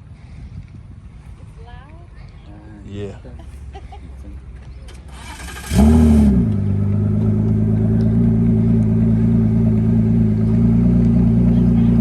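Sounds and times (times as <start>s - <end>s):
car engine starting and idling: 4.7s - 12.0s.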